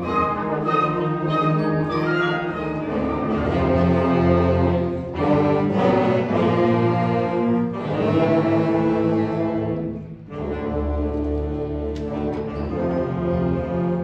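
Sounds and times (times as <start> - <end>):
wind ensemble playing chords: 0.0 - 14.0.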